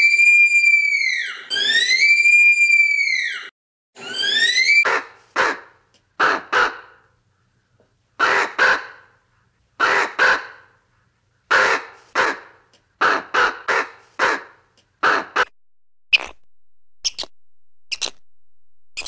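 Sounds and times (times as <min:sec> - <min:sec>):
rising whistle: 0:00.0 - 0:03.5.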